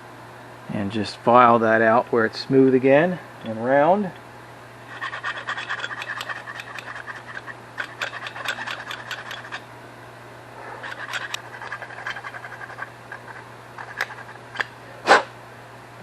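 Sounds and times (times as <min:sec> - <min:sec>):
file rasping on metal: 0:04.9 - 0:09.6, 0:10.8 - 0:14.7.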